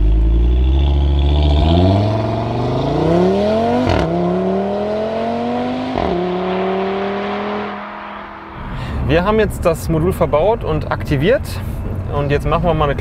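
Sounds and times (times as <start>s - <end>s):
car engine accelerating: 0.0s - 9.6s.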